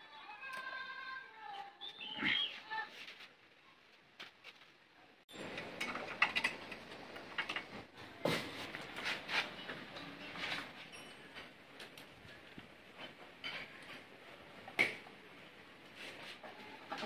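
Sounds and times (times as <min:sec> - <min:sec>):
metal tools clinking: 0:10.9 - 0:12.1.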